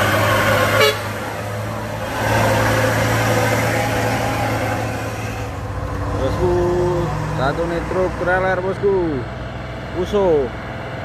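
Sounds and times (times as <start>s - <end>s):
heavy truck engine labouring: 0.0s - 11.0s.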